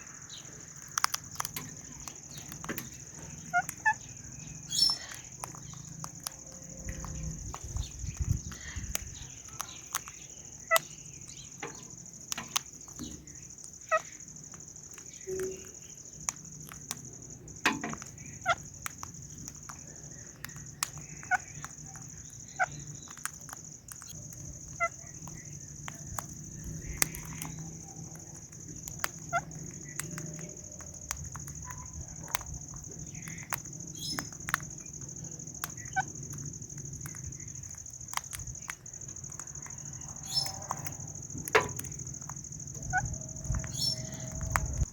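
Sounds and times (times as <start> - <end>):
steady high-pitched hiss: 0.0 - 44.9
parrot beak bites and clicks: 0.8 - 4.0
parrot chirping: 0.8 - 6.6, 8.4 - 12.7, 18.2 - 18.9, 20.3 - 25.6, 26.2 - 30.1, 39.6 - 40.9, 41.8 - 44.8.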